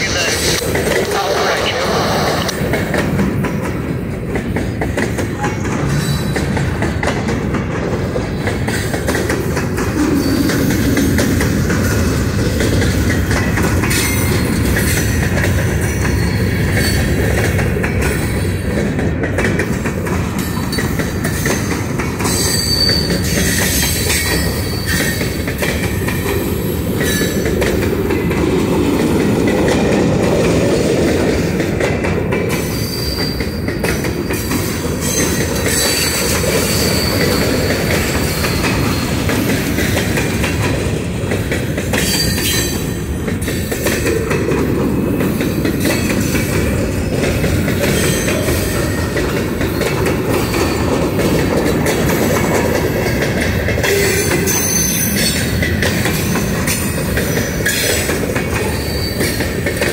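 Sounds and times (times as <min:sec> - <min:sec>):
railroad cars rolling past: 0:00.0 - 0:59.9
high wheel squeal: 0:22.3 - 0:25.4, 0:32.6 - 0:33.6, 0:34.2 - 0:39.2, 0:58.6 - 0:59.5.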